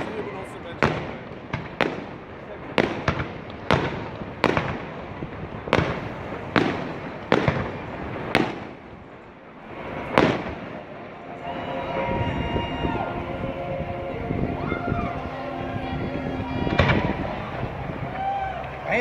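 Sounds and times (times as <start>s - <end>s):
fireworks bangs echoing: 0.0s - 13.6s, 16.3s - 19.0s
continuous rumble: 0.7s - 19.0s.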